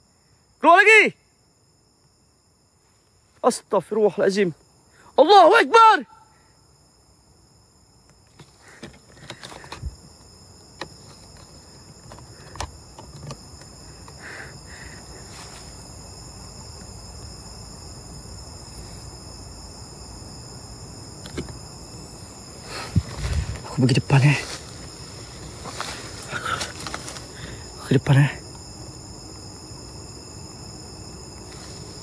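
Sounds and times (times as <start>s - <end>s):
insects chirring: 0.0s - 32.0s
rustles in undergrowth: 8.2s - 32.0s.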